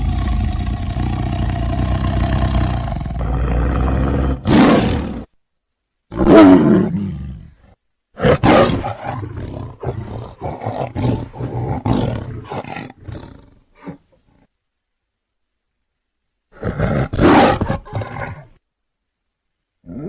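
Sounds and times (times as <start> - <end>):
tiger roaring: 0.0 - 5.3, 6.1 - 7.6, 8.2 - 14.0, 16.5 - 18.5.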